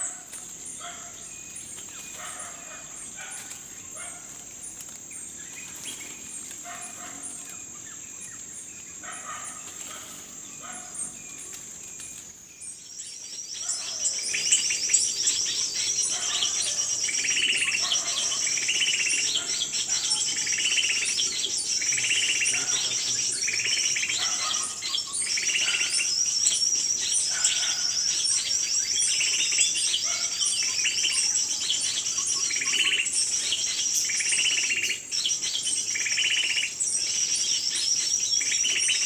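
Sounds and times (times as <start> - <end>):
small birds chirping: 0.0 - 39.0
rapid high bird chattering: 13.9 - 34.9.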